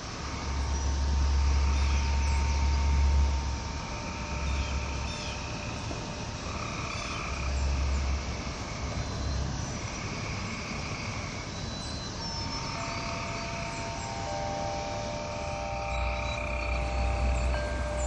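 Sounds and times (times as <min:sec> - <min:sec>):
frogs calling in chorus: 0:00.0 - 0:18.0
wind chimes ringing: 0:12.7 - 0:18.0.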